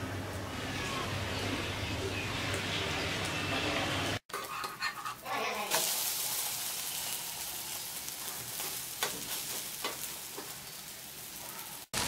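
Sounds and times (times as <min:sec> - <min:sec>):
spatula scraping a pan: 0:04.3 - 0:06.3
dosa sizzling in a frying pan: 0:04.3 - 0:12.0.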